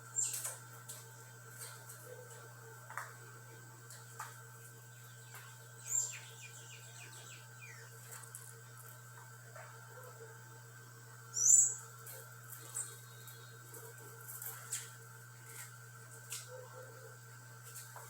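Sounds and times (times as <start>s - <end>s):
small birds chirping: 0.0s - 0.6s, 4.1s - 9.0s, 11.3s - 14.6s
steady low hum: 0.0s - 18.0s.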